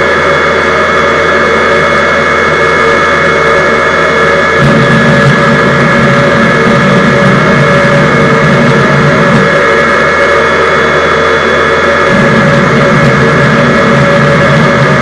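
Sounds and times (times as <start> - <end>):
jet engine running with turbine whine: 0.0 - 15.0.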